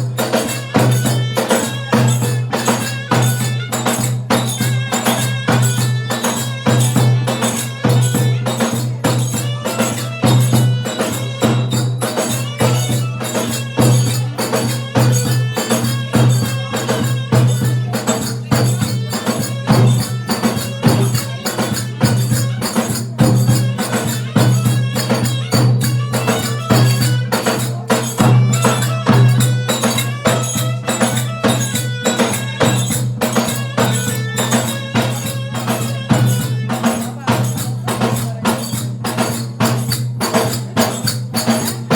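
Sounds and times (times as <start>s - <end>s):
fast percussion beat: 0.0s - 41.9s.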